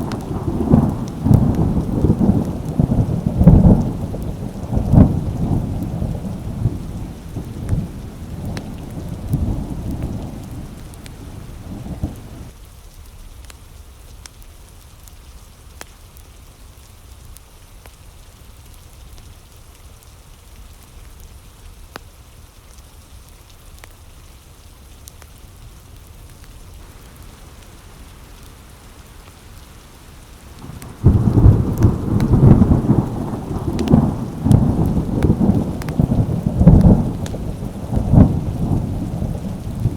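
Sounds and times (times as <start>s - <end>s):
sharp crackles: 0.0s - 12.5s, 26.8s - 39.9s
thunder rumbling: 0.0s - 12.5s, 26.8s - 39.9s
rain on window glass: 0.0s - 12.6s, 26.1s - 39.9s.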